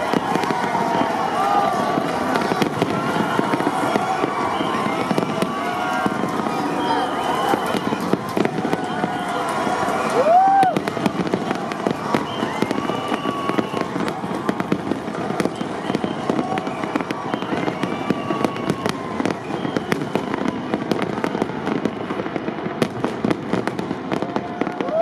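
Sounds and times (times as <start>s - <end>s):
fireworks crackling and popping: 0.0s - 25.0s.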